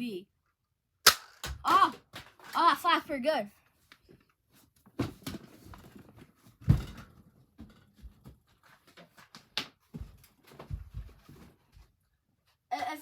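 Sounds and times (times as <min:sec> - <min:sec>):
knocks and handling sounds: 0:03.8 - 0:12.0.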